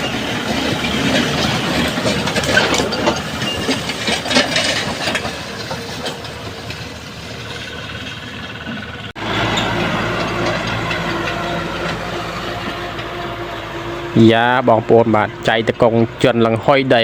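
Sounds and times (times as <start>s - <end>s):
tractor engine clattering: 0.0s - 17.0s.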